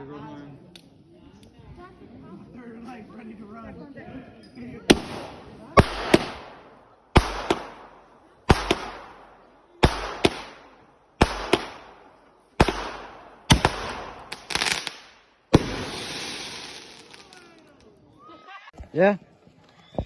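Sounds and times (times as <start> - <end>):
fireworks shots banging: 4.8 - 17.7
fireworks crackling: 4.9 - 18.3.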